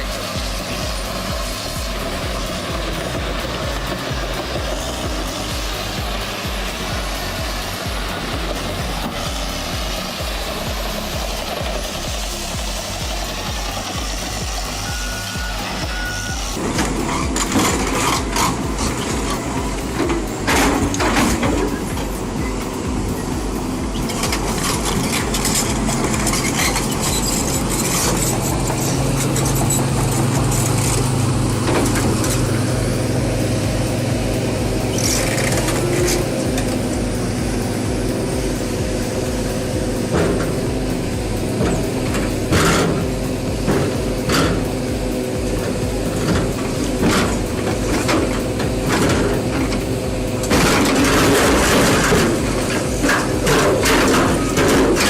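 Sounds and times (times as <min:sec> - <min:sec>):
heavy machine engine running: 0:00.0 - 0:55.0
sharp knocks and clanks: 0:16.6 - 0:22.2, 0:40.0 - 0:55.0.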